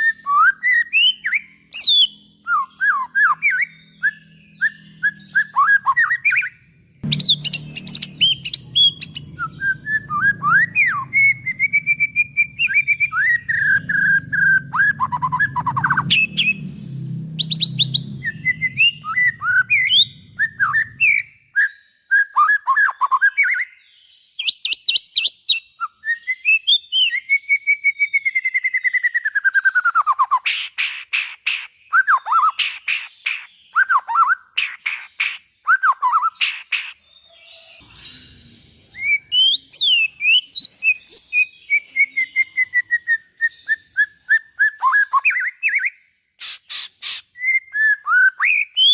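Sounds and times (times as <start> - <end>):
bird singing whistles and trills: 0.0 - 48.9
low hum: 6.8 - 21.2.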